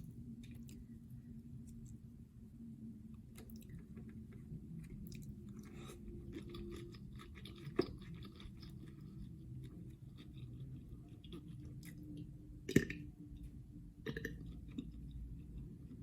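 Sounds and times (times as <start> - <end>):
wet chewing: 3.3 - 12.2.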